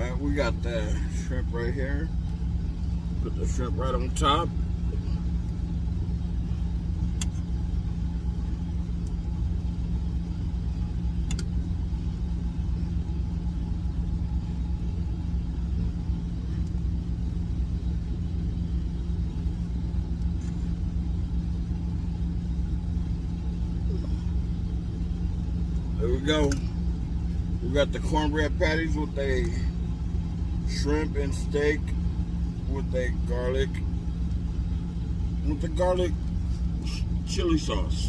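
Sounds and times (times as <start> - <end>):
truck engine idling: 0.0 - 38.0
faint light clicks: 11.2 - 11.5.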